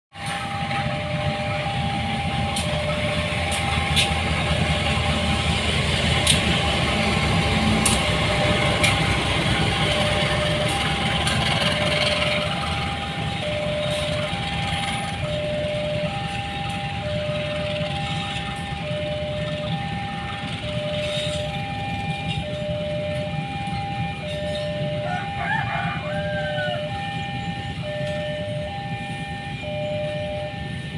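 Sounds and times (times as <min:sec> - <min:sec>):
passing train rumble: 0:00.1 - 0:30.9
level crossing two-note alarm: 0:06.6 - 0:30.9.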